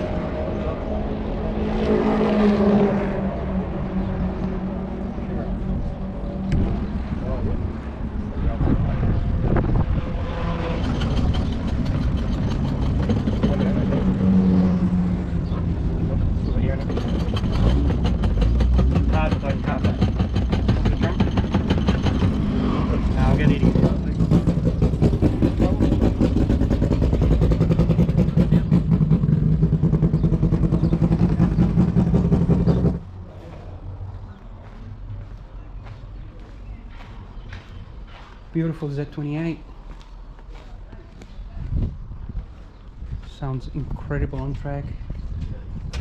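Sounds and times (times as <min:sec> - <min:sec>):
race car engine running: 0:10.1 - 0:33.0.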